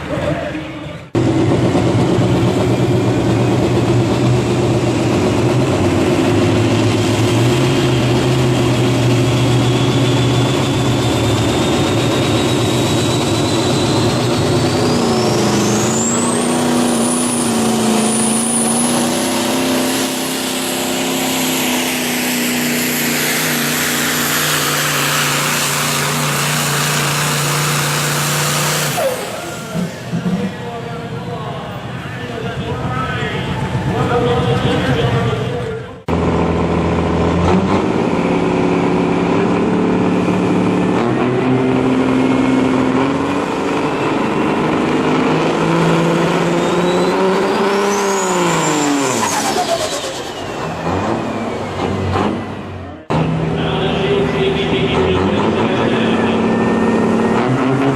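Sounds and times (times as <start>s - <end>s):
diesel truck engine under load: 0.0s - 57.9s
turbocharger whistle: 6.8s - 30.6s, 45.5s - 52.2s, 54.7s - 57.9s.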